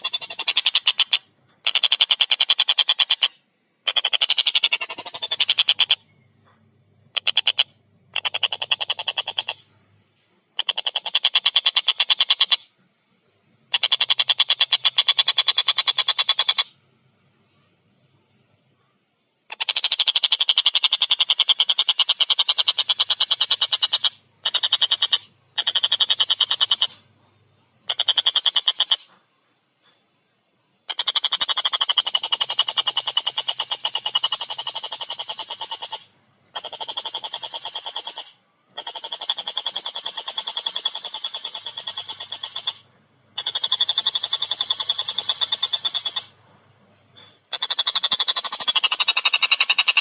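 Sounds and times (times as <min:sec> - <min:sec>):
kingfisher chattering call: 0:00.0 - 0:03.3, 0:03.9 - 0:06.0, 0:07.1 - 0:09.6, 0:30.9 - 0:42.8, 0:43.4 - 0:46.3
kingfisher calling harsh notes: 0:03.9 - 0:06.0, 0:43.4 - 0:46.3.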